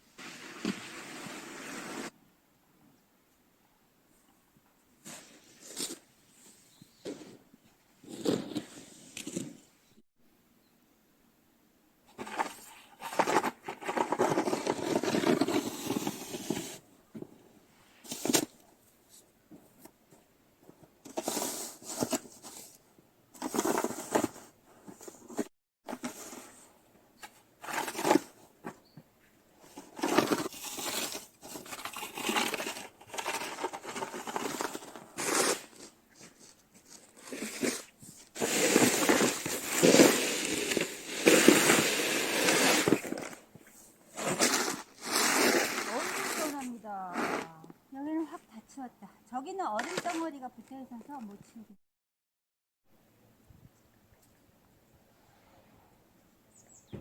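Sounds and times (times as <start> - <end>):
shovel scraping snow: 0.0 - 2.2, 8.0 - 9.6, 12.2 - 16.8, 29.7 - 47.6.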